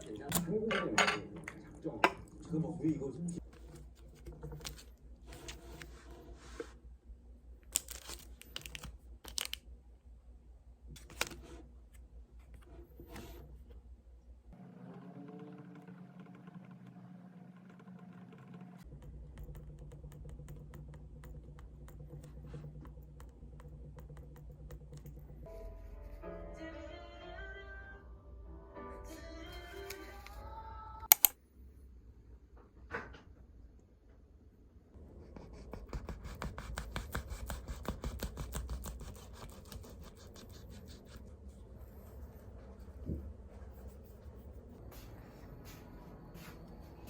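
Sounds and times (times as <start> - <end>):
low steady hum: 0.0 - 32.6
crackling and rustling when handled: 7.6 - 9.7.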